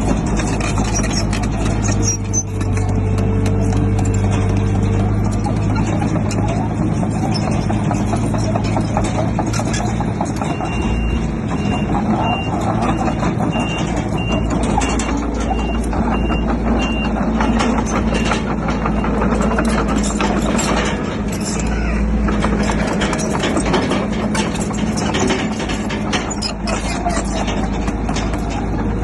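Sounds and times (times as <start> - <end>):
bulldozer diesel engine running: 0.0 - 29.0
metallic clanks: 0.0 - 29.0
reversing alarm beeping: 10.4 - 20.2.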